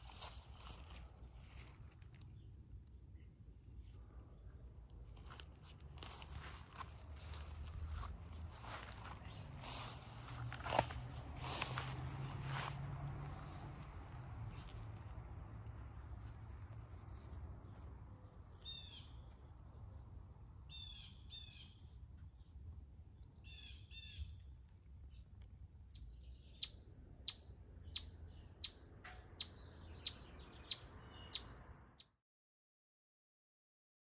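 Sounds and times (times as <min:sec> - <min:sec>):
birds chirping: 0:06.0 - 0:12.7, 0:25.9 - 0:32.1.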